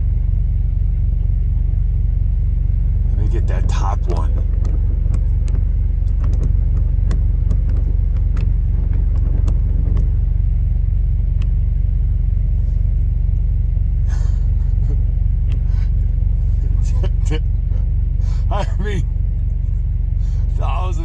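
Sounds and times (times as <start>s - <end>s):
vehicle engine idling: 0.0s - 21.0s
light clicks: 4.3s - 10.1s.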